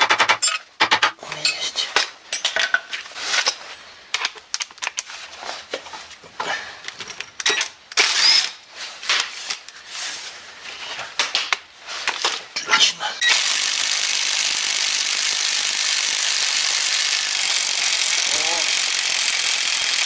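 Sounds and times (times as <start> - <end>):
metallic clanks of hand tools: 12.2 - 13.0.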